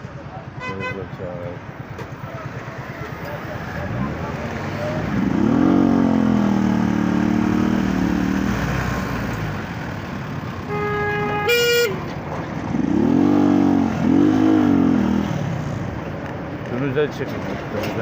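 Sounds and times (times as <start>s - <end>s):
vehicle horn: 0.6s - 1.1s, 10.6s - 12.1s
motorcycle engine revving: 2.5s - 16.1s.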